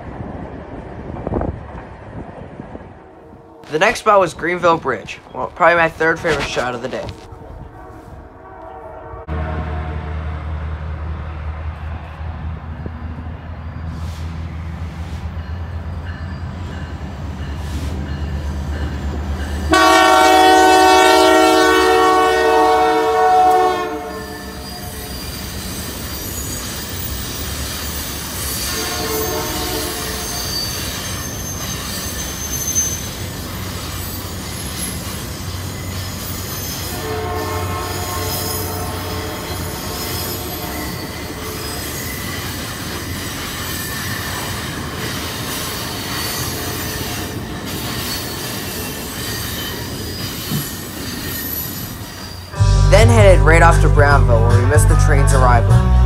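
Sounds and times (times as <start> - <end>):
diesel locomotive engines rumbling: 0.0 - 56.0
train rolling noise: 0.0 - 56.0
train horn blasts: 7.3 - 10.6, 19.7 - 25.2, 28.7 - 30.5, 36.9 - 41.7
high-pitched wheel squeal: 24.0 - 37.2, 37.9 - 42.7, 45.7 - 52.6.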